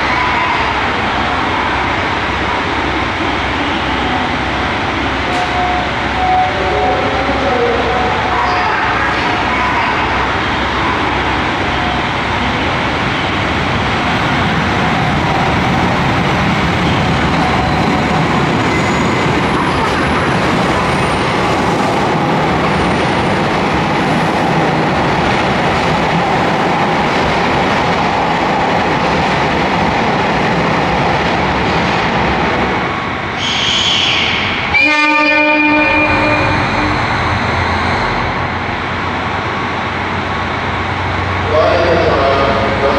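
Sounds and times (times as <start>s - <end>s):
train wheels rumbling: 0.0s - 42.9s.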